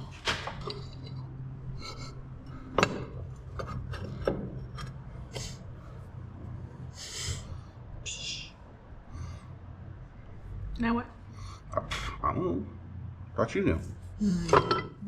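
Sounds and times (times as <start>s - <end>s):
sharp knocks of parts: 0.0s - 1.1s
steady low hum: 0.0s - 15.0s.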